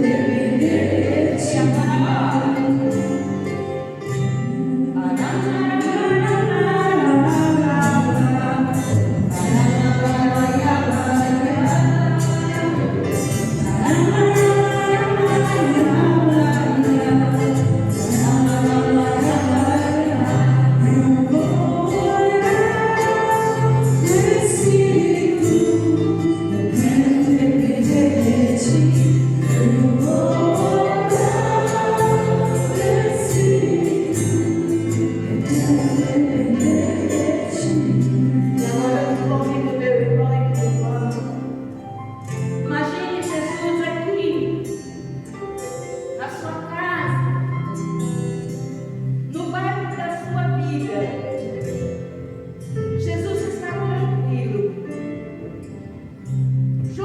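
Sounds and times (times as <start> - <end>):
voices singing worship song: 0.0 - 3.5, 4.1 - 41.4.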